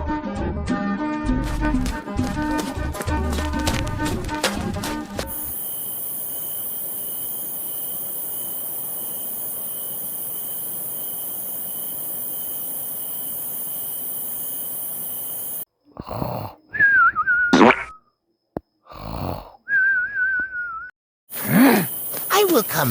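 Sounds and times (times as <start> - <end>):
high insect trill: 1.4 - 17.5, 21.3 - 22.9
even hiss: 5.3 - 16.6.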